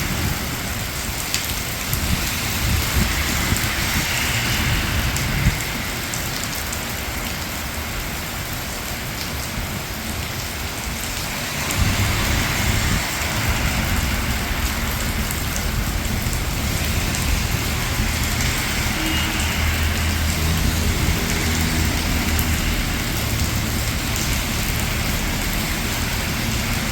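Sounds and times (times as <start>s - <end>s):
low rumble of traffic: 0.0s - 26.9s
rain falling on street: 0.0s - 26.9s.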